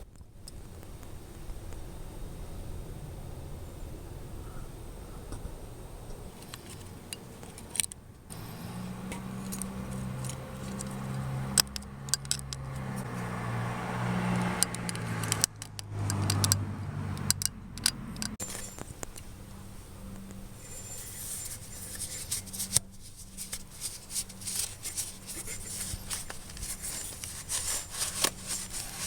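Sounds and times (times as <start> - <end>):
metal tools clinking: 9.1 - 13.0, 17.2 - 19.3.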